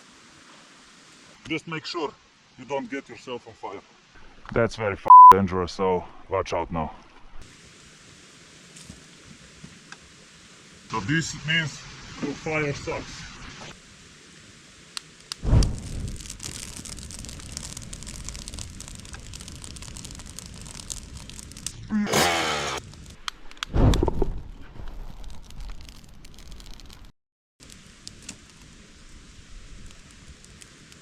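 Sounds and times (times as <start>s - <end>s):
campfire crackling and rustling: 0.0s - 4.6s, 7.1s - 31.0s
low fire whooshes: 13.8s - 21.9s, 22.8s - 27.0s.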